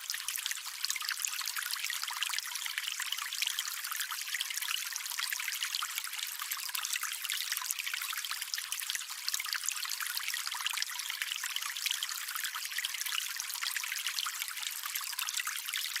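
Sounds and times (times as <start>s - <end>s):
water trickling and splashing: 0.0s - 16.0s.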